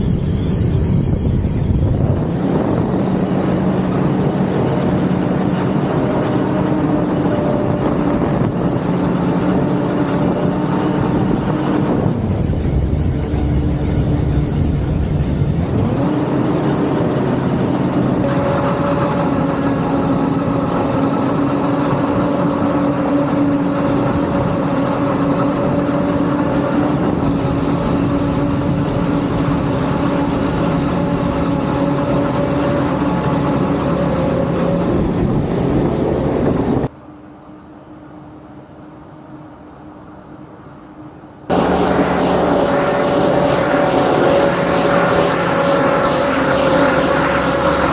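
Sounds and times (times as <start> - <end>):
harvesting machine engine drone: 0.0 - 47.9.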